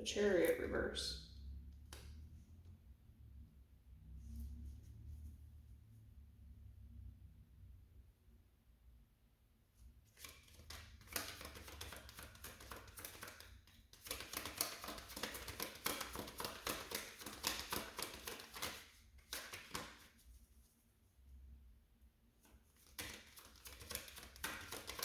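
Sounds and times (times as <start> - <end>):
cards being shuffled: 10.2 - 20.2, 22.5 - 25.0.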